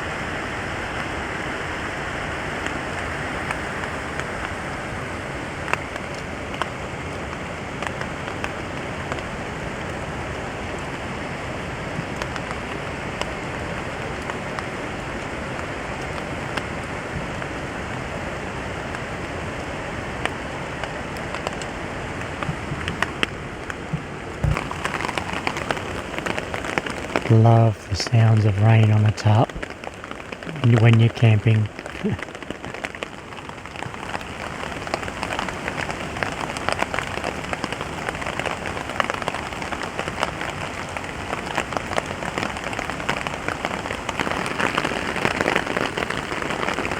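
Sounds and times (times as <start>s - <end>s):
rain on a tarp: 0.0s - 46.9s
drops ticking on fabric: 23.9s - 27.3s.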